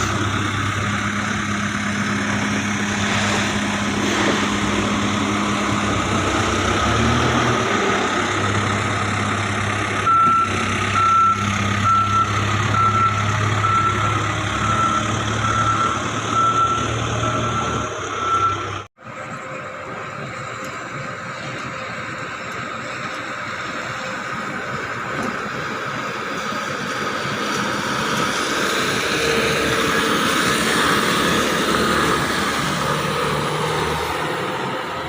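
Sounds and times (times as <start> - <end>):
diesel engine running: 0.0 - 35.0
reversing alarm beeping: 10.0 - 22.5.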